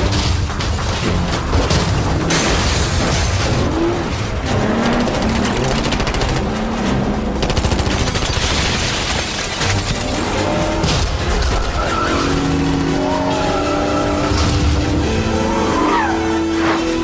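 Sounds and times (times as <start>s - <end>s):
rapid automatic gunfire: 1.1s - 10.3s, 11.1s - 13.7s.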